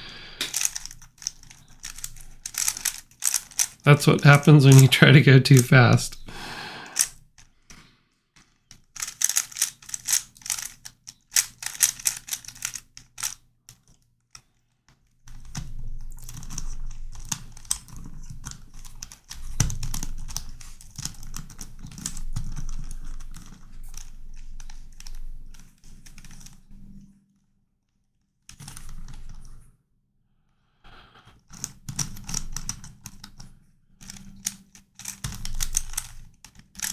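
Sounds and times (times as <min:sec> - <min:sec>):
plastic puzzle clicking and rattling: 0:00.4 - 0:06.2, 0:06.8 - 0:07.1, 0:08.4 - 0:14.0, 0:15.3 - 0:25.2, 0:31.6 - 0:33.4, 0:34.0 - 0:36.9.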